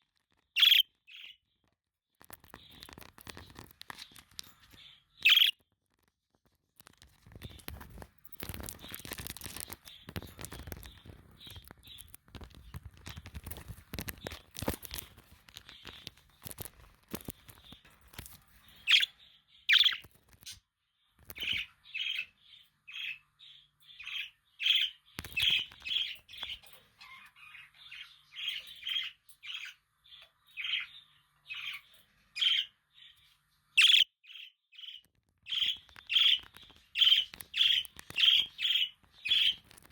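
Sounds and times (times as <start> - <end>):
budgerigars chirping: 0.6 - 1.3, 5.2 - 5.5, 18.8 - 20.1, 24.0 - 29.8, 30.6 - 32.8, 33.8 - 39.7
rustling fluttering: 6.4 - 19.0.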